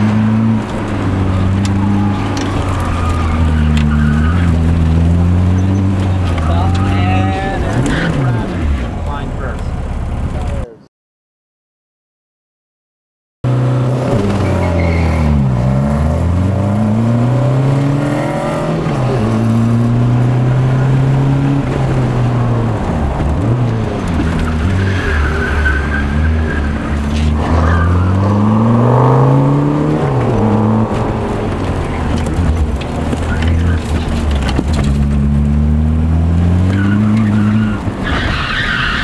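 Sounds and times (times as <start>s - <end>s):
car engine revving: 0.0s - 10.6s, 13.4s - 39.0s
tyres squealing: 1.2s - 8.4s, 36.5s - 39.0s.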